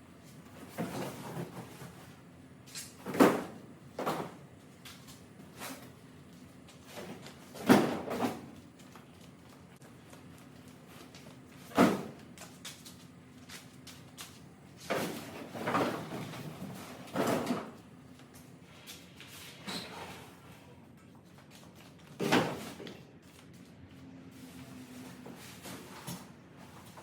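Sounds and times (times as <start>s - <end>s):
garbage banging and clattering: 6.9s - 8.6s, 11.6s - 12.3s, 14.8s - 17.8s.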